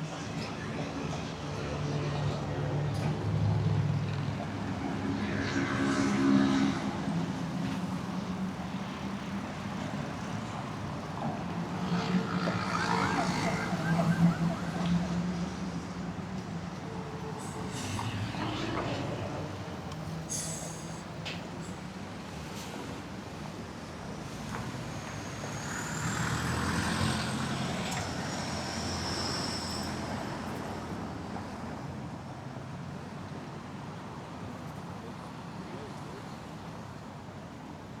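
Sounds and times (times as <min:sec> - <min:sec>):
vehicle engines passing: 0:11.5 - 0:21.2
siren wailing: 0:13.0 - 0:15.3.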